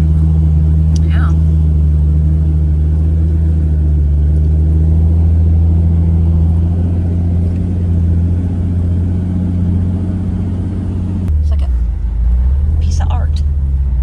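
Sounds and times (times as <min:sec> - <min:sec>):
car engine humming while driving: 0:00.0 - 0:14.0.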